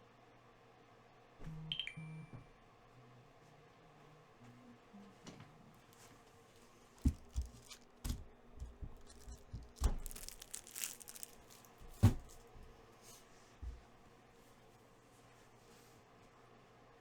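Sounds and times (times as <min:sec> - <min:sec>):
wrapper tearing and crinkling: 0:07.0 - 0:08.0, 0:09.0 - 0:12.4.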